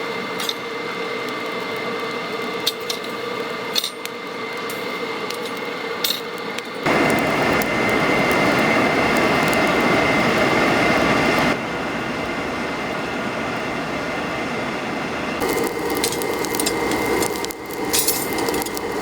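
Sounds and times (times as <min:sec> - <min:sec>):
workshop machinery humming: 0:00.0 - 0:19.0.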